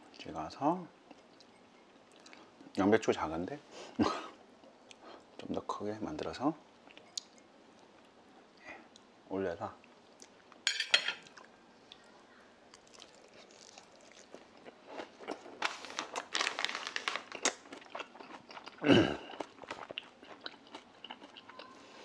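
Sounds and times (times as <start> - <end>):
man chewing food: 1.0 - 2.8, 4.6 - 5.5, 9.8 - 10.6, 12.7 - 22.0.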